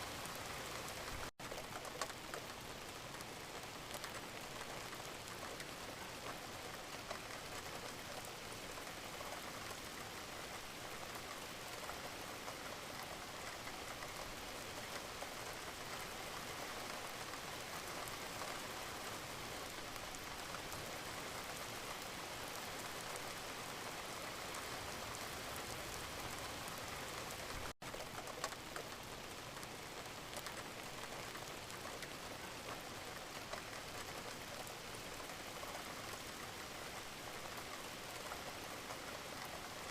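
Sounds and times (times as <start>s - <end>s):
rain pattering on surface: 0.0s - 39.9s.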